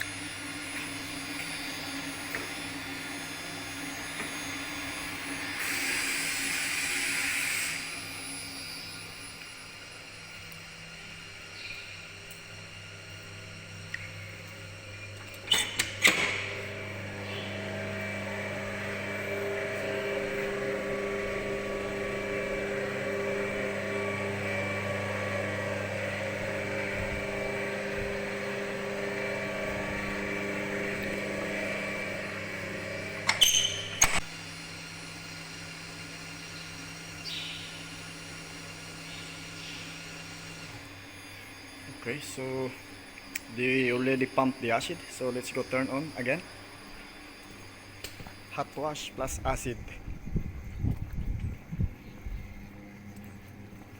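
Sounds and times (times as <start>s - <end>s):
dosing pump humming: 0.0s - 53.9s
low quiet hum: 41.8s - 53.9s.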